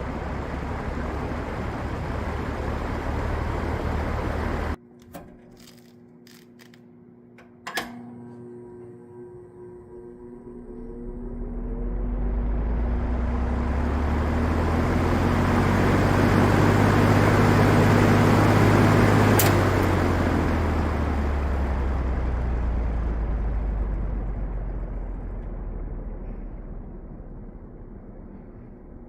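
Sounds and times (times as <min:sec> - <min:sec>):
box fan running: 0:00.0 - 0:29.0
fan switch click: 0:19.3 - 0:20.2.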